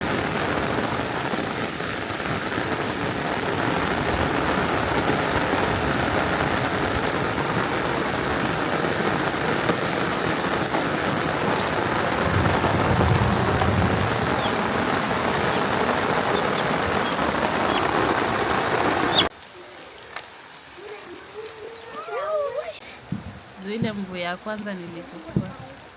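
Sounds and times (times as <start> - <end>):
heavy rain falling: 0.0 - 25.9
low rumble: 12.2 - 15.4.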